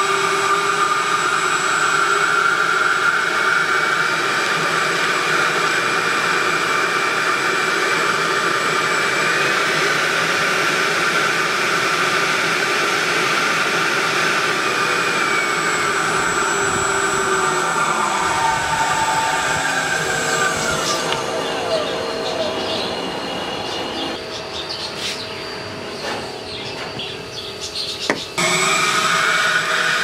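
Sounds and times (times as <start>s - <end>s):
model jet fan whining: 0.0s - 30.0s.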